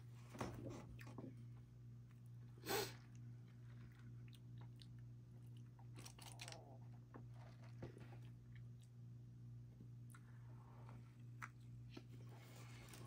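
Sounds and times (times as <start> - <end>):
chewing sandwich: 0.8 - 9.1.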